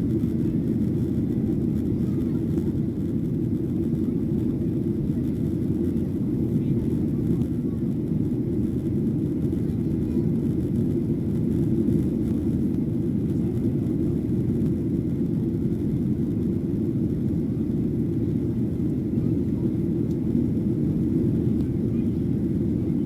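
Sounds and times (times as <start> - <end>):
airliner cabin rumble: 0.0 - 23.0.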